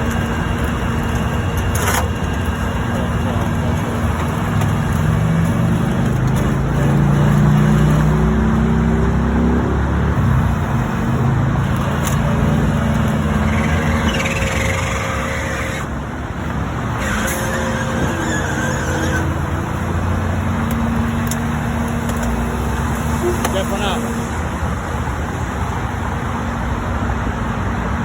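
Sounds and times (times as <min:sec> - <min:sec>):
faint high whine: 0:00.0 - 0:05.9
roadside traffic: 0:00.0 - 0:28.0
truck engine humming: 0:00.0 - 0:28.0.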